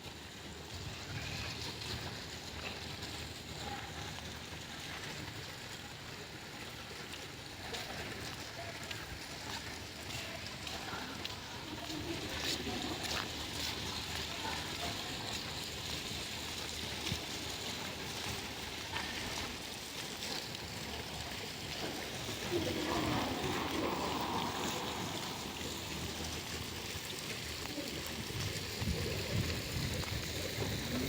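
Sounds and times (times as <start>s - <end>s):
steady rushing background noise: 22.1s - 27.0s.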